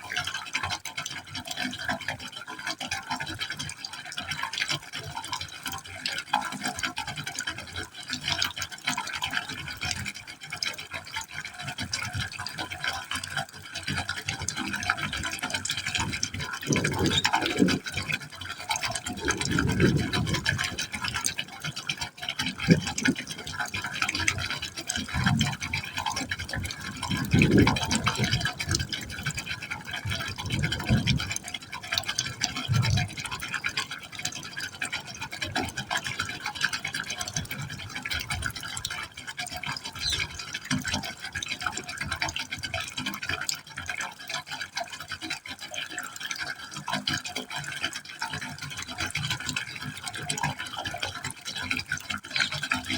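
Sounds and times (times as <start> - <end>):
deep gurgles and glugs: 0.0 - 52.9
water pouring into a pipe: 0.0 - 52.9.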